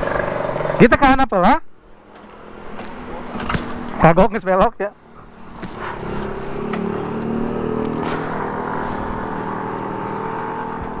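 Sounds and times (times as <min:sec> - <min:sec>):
vehicle engine running: 0:05.0 - 0:11.0.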